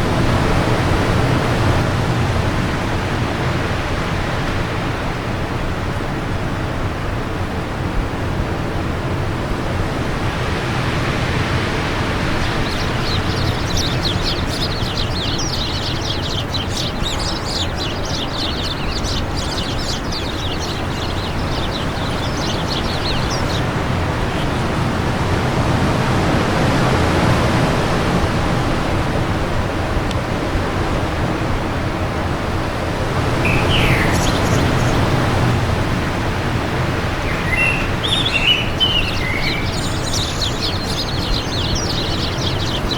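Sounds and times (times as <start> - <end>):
wind blowing: 8.7 - 42.9
small bird twittering: 11.8 - 24.9, 33.4 - 35.3, 37.2 - 42.9.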